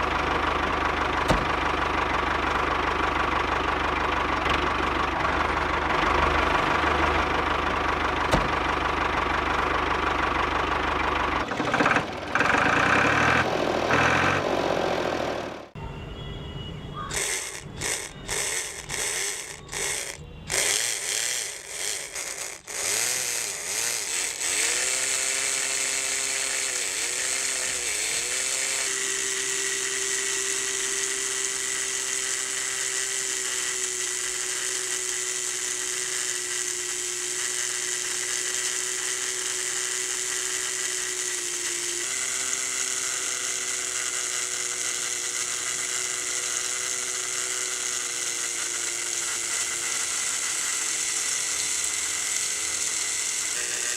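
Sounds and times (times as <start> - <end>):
small electric motor whining: 17.0 - 53.9.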